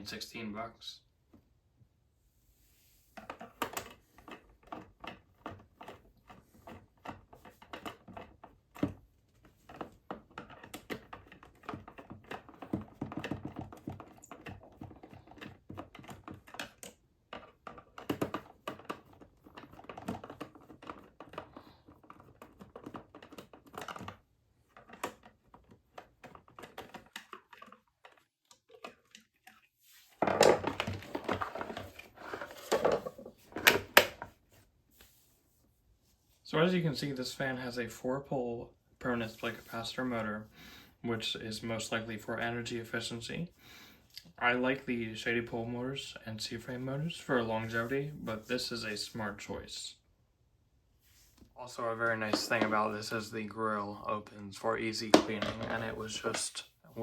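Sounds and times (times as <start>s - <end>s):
plastic parts clicking and clattering: 3.2s - 34.4s, 52.0s - 53.2s, 55.0s - 56.6s.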